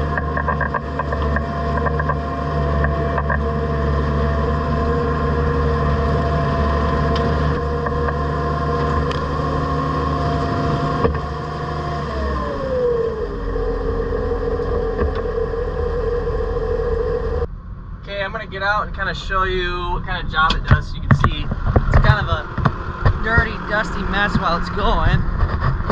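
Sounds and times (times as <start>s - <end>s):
bale processor drums spinning: 0.0s - 17.5s
tractor engine running: 0.0s - 25.9s.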